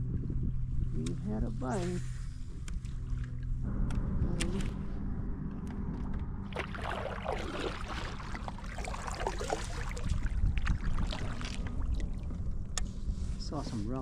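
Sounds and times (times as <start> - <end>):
faint steady hum: 0.0 - 14.0
wind rumble on microphone: 0.0 - 14.0
water splashing around kayak: 6.5 - 13.5.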